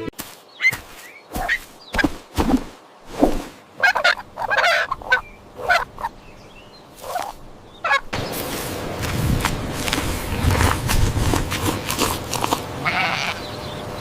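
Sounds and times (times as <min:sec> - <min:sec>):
domestic fowl calling: 0:03.8 - 0:06.2, 0:07.0 - 0:08.1.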